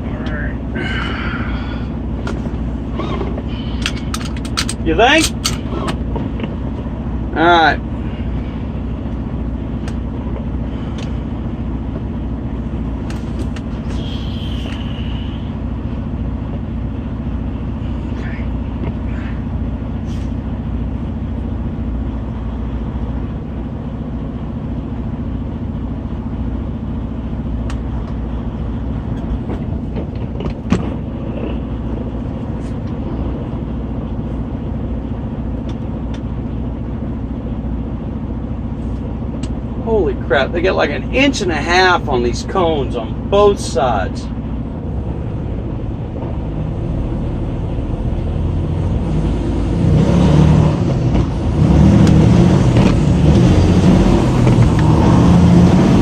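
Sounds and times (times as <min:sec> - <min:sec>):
diesel truck engine running: 0:00.0 - 0:56.0
high squeal: 0:13.8 - 0:15.5.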